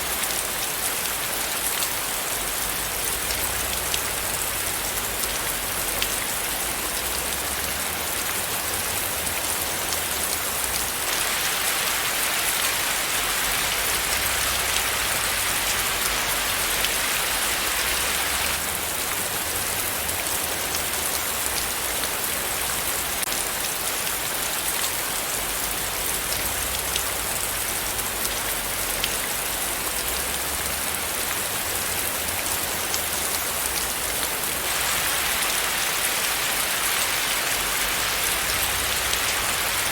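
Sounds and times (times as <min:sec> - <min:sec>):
rain drops pattering: 0:00.0 - 0:39.9.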